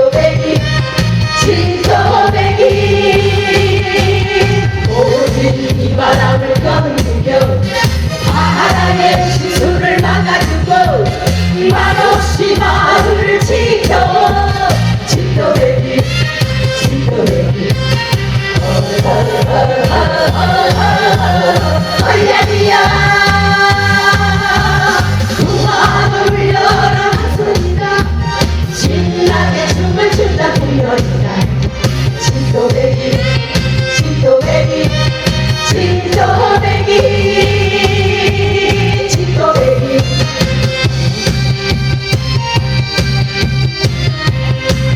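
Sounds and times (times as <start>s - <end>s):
band playing steady beat: 0.1s - 44.9s
person singing: 18.6s - 28.0s.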